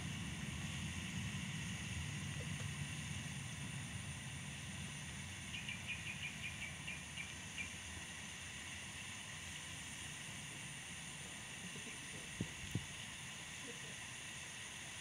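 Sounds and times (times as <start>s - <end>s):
high insect drone: 0.0s - 15.0s
bird chirping: 5.5s - 7.7s.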